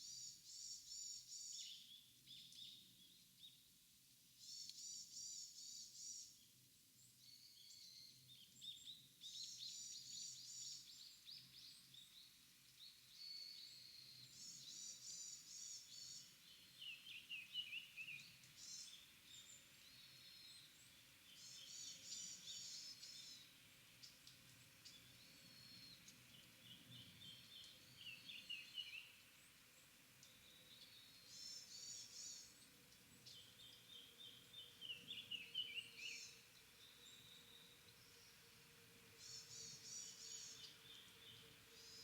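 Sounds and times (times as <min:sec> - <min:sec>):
faint forest background: 0:00.0 - 0:42.0
small songbirds chattering: 0:13.2 - 0:38.4, 0:39.1 - 0:42.0.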